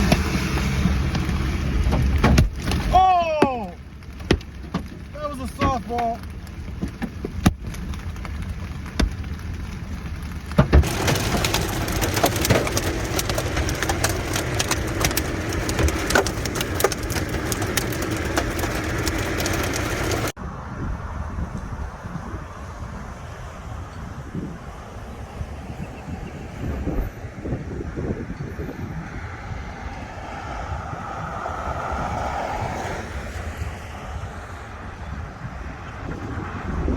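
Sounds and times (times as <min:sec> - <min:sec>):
hailstones hitting a vehicle: 0:00.0 - 0:20.4
wind with low rumble: 0:00.0 - 0:36.9.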